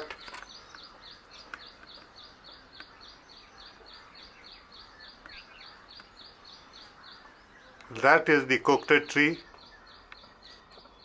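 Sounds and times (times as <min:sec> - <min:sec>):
faint bird calls: 0:00.0 - 0:11.0
high bird chirps: 0:00.0 - 0:11.0.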